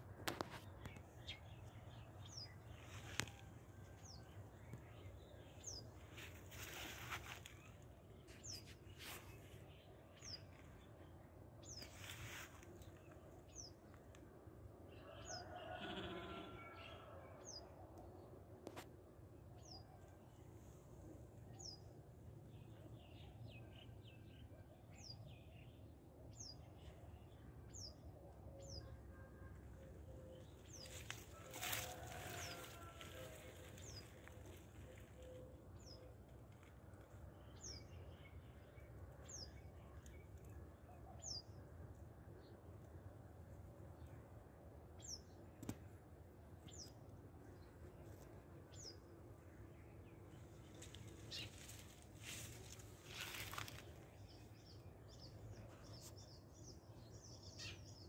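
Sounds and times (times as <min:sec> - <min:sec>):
soft rustling: 0:06.0 - 0:09.5, 0:30.8 - 0:35.2.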